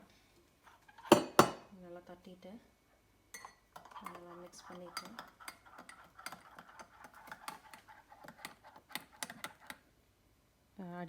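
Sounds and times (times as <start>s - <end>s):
teaspoon clinking against cup: 1.1s - 1.6s, 3.4s - 9.8s.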